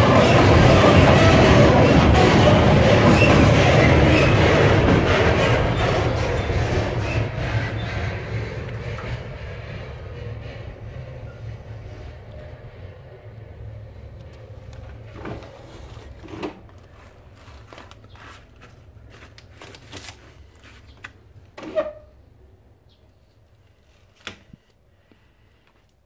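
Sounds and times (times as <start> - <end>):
diesel freight train rumble: 0.0 - 19.6.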